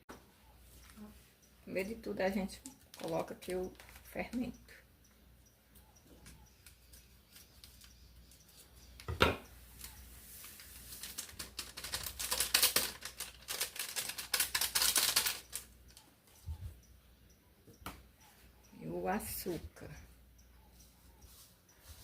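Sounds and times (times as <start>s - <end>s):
yeast crackling and ticking: 0.8s - 17.0s.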